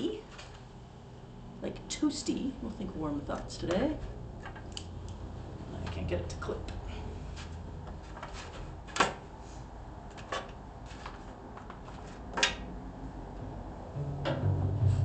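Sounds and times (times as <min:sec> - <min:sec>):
book pages rustling: 0:07.2 - 0:09.2, 0:10.1 - 0:12.3
low hum: 0:12.8 - 0:15.0.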